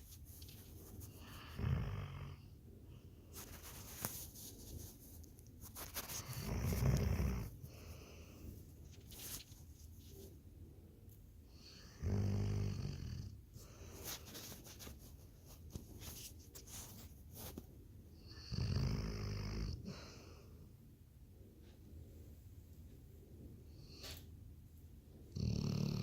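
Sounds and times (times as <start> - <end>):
quiet breathing: 0.0 - 5.0, 6.0 - 18.4, 19.3 - 24.5
dog snoring: 1.3 - 2.5, 6.2 - 7.6, 11.6 - 13.4, 18.3 - 20.2, 25.3 - 26.0.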